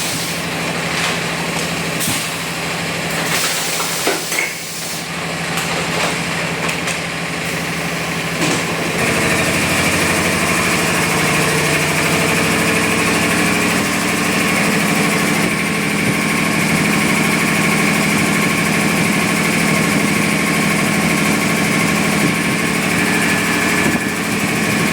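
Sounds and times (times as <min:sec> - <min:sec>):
air compressor humming: 0:00.0 - 0:24.9
high whine: 0:20.8 - 0:24.9.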